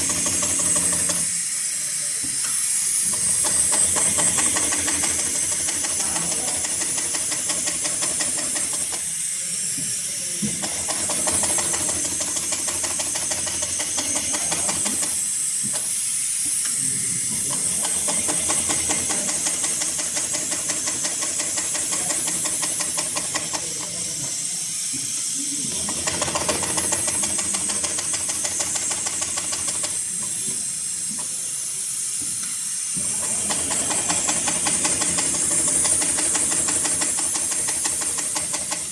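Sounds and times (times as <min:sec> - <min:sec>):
sewing machine stitching: 0:00.0 - 0:01.3, 0:03.0 - 0:09.1, 0:10.5 - 0:15.2, 0:17.4 - 0:24.4, 0:25.6 - 0:30.2, 0:33.0 - 0:38.9.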